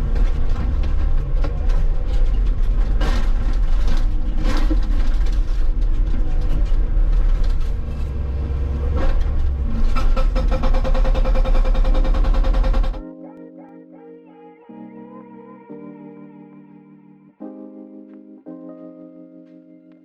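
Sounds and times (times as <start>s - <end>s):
excavator engine and hydraulic rumble: 0.0s - 13.0s.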